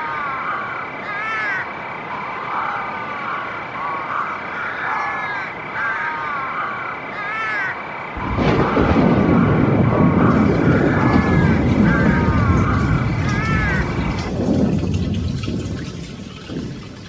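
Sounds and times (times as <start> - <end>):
short chirping animal calls: 0.0 - 8.3
loud low rumble: 8.2 - 16.2.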